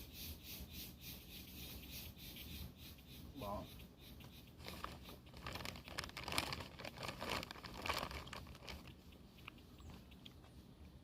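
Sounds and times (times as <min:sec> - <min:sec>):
plastic or paper crinkling: 0:04.6 - 0:08.9.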